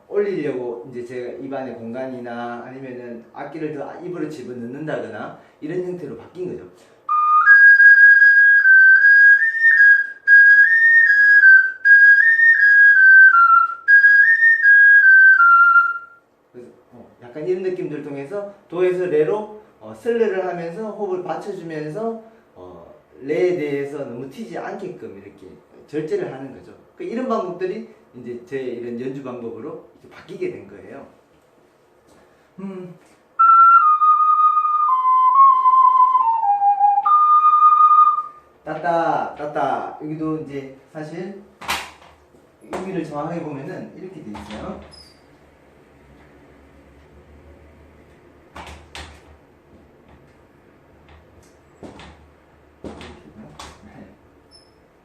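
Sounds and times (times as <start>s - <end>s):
ocarina playing slow melody: 7.1s - 16.2s, 33.4s - 38.5s.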